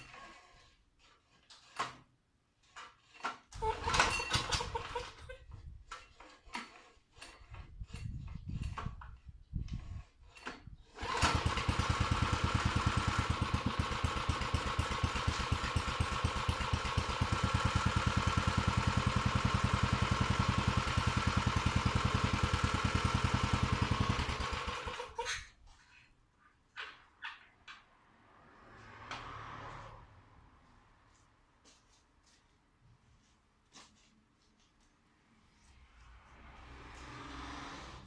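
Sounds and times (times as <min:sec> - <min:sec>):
small pump engine running: 0:10.9 - 0:25.4.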